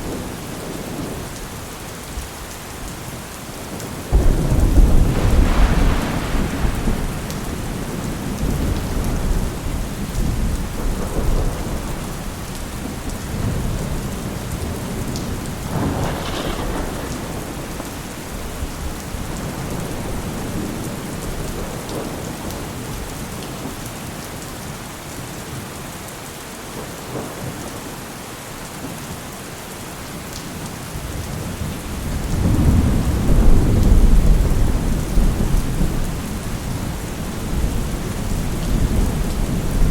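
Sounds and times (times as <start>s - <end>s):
rain falling: 0.0s - 39.9s
rolling thunder: 4.1s - 22.4s, 31.6s - 39.9s.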